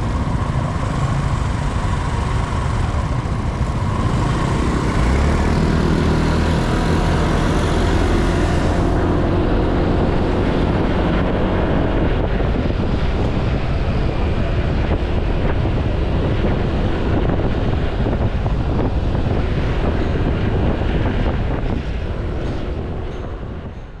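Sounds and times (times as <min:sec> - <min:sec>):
scooter engine running: 0:00.0 - 0:12.5
road noise: 0:00.0 - 0:24.0
wind rush on microphone: 0:00.0 - 0:24.0.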